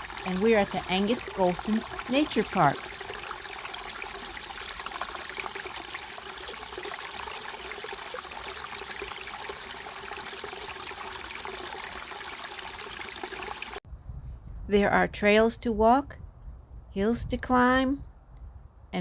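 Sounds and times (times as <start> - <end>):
stream running water: 0.0 - 13.8.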